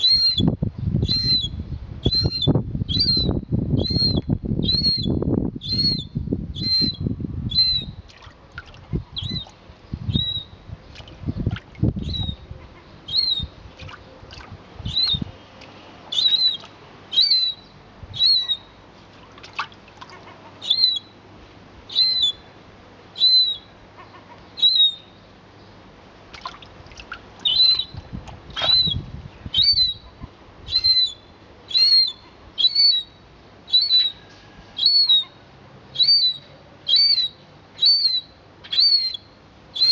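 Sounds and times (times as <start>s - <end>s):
bird chirping: 0.0s - 8.0s, 9.2s - 14.2s, 14.8s - 15.5s, 16.1s - 18.8s, 20.6s - 21.2s, 21.9s - 22.5s, 23.2s - 25.8s, 27.4s - 28.0s, 28.6s - 30.1s, 30.7s - 35.4s, 36.0s - 39.9s.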